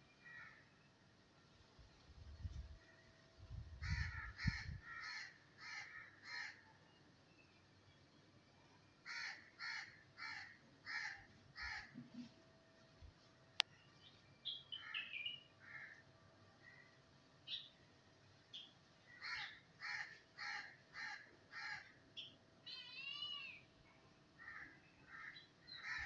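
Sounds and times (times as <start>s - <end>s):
bird calling: 14.4s - 16.0s.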